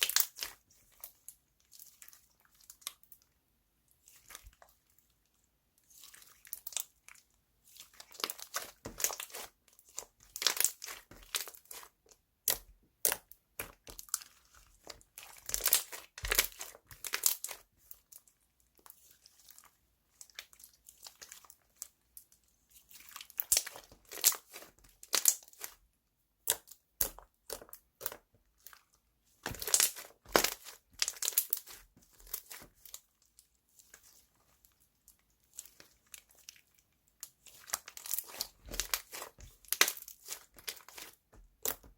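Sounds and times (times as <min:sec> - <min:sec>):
hands squeezing crackling slime: 0:00.0 - 0:03.1, 0:07.7 - 0:18.2, 0:22.8 - 0:25.8, 0:29.4 - 0:34.3, 0:35.4 - 0:41.9.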